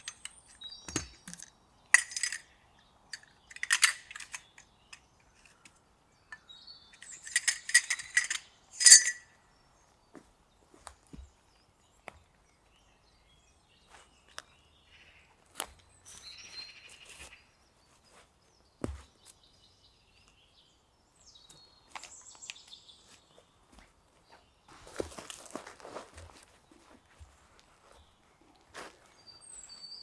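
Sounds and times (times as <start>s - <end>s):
sharp cracks and clicks: 0.0s - 2.4s, 3.2s - 5.7s.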